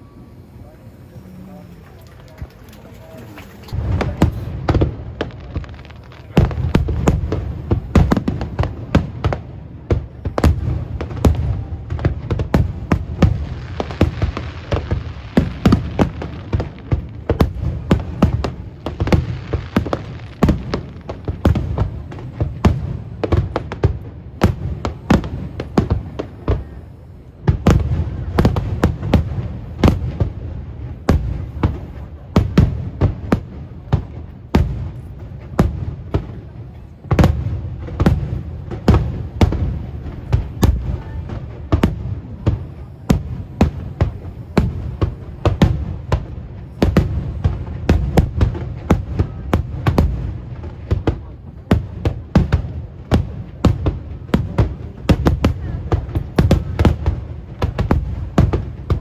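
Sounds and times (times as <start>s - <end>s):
fireworks bursting: 0.0s - 59.0s
firework shells bursting: 0.5s - 26.8s.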